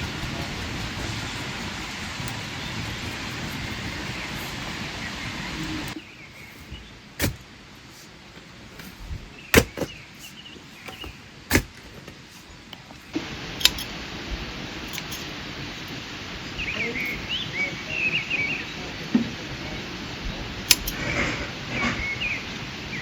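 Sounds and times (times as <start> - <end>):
faint bird chirps: 16.6 - 18.9, 21.7 - 23.0.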